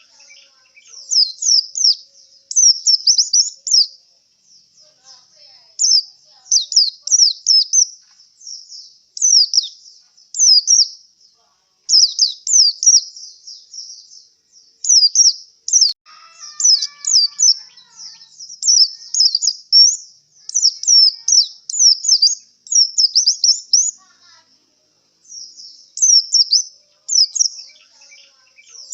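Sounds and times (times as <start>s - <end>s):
bird chirping high notes: 14.9s - 24.4s, 25.2s - 28.9s.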